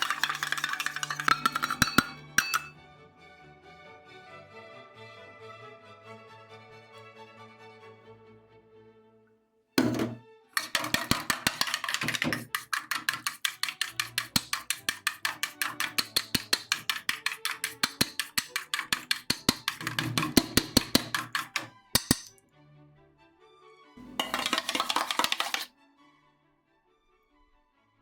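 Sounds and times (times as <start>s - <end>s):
whisk beating batter in bowl: 0.0s - 2.7s, 9.8s - 22.3s, 24.0s - 25.7s.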